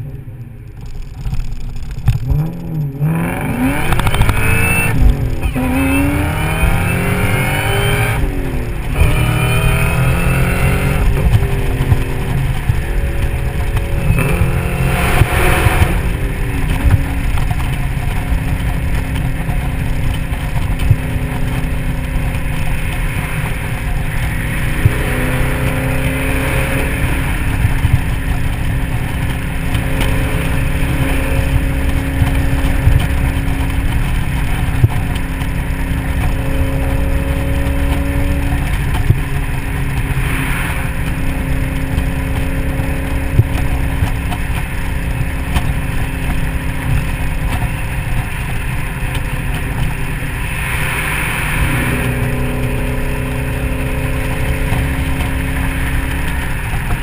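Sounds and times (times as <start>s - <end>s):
car engine cruising: 0.0s - 57.0s
wind and road noise: 0.0s - 57.0s.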